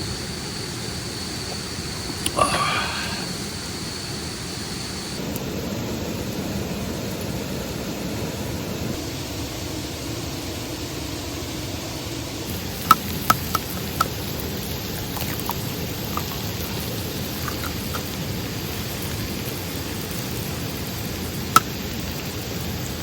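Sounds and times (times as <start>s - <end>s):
sharp pops: 12.5s - 20.5s.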